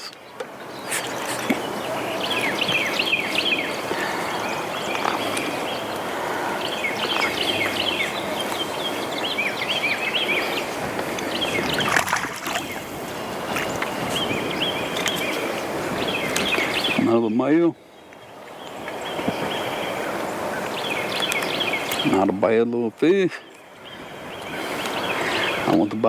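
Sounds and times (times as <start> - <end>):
birds chirping: 0.0 - 26.0
water noise: 0.0 - 26.0
wind: 0.0 - 26.0.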